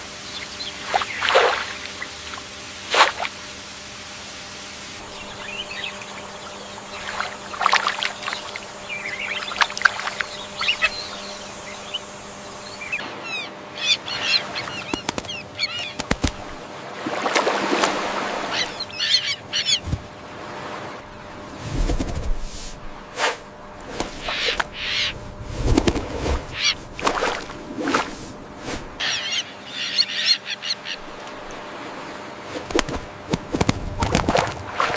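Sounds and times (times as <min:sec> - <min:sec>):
faint steady hum: 0:00.0 - 0:34.9
birds chirping and squawking: 0:05.0 - 0:16.4, 0:18.4 - 0:19.9, 0:24.1 - 0:25.2, 0:25.8 - 0:26.9, 0:29.0 - 0:31.4.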